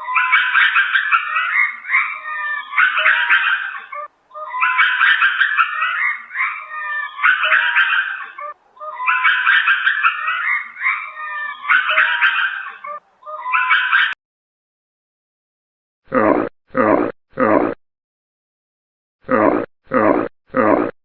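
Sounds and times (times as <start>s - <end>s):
lemur yapping chatter: 0.0s - 14.2s.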